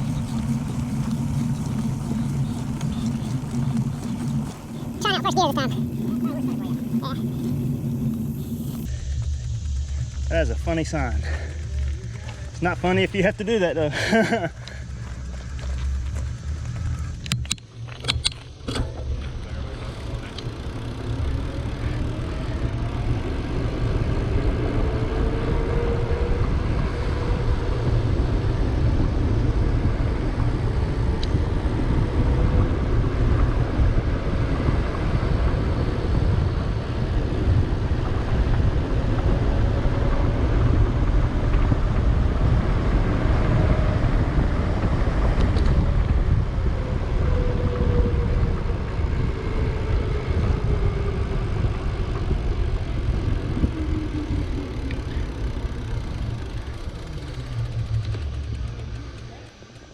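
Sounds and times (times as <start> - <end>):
faint wavering whine: 0.0 - 25.3, 45.4 - 59.9
wind buffeting microphone: 0.0 - 59.2
bicycle tyres rolling on road: 0.0 - 59.9.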